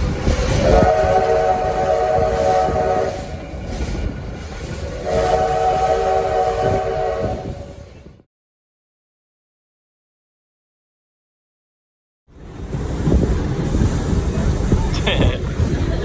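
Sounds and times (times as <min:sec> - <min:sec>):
train running rumble: 0:00.0 - 0:08.2, 0:12.3 - 0:16.0
steam locomotive whistle blasts: 0:00.2 - 0:03.9, 0:04.7 - 0:08.1.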